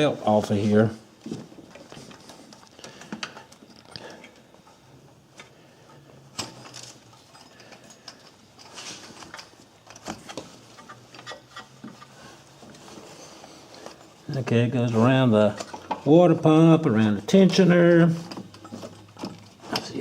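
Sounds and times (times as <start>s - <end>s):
hands removing rubber belt: 6.4s - 14.0s.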